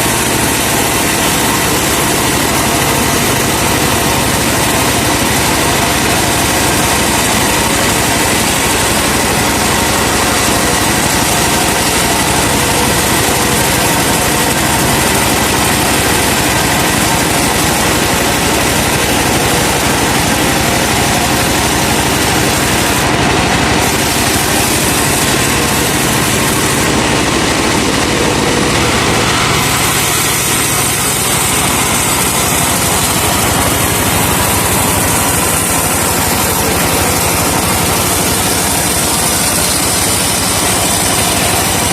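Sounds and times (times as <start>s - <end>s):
sawmill machine noise: 0.0s - 41.9s
truck engine running: 0.0s - 41.9s.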